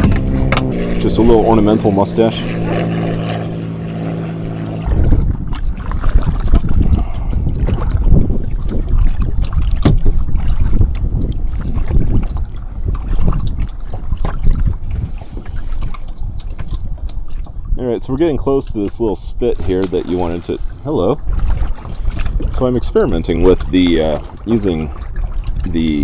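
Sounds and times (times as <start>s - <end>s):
steady hum: 0.0s - 8.6s
paddle splashes and knocks: 0.0s - 17.8s, 18.8s - 26.0s
wind buffeting microphone: 0.0s - 26.0s.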